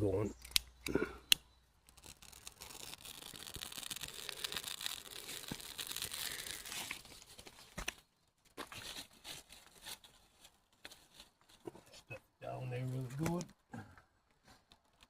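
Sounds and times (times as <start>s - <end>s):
sharp click: 0.4s - 0.7s.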